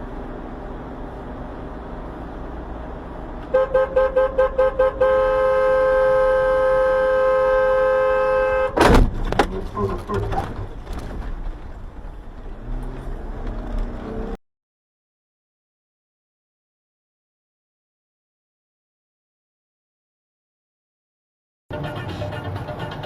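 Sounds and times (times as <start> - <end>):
car horn beeping: 3.4 - 9.0
loud bang of collision: 8.8 - 9.5.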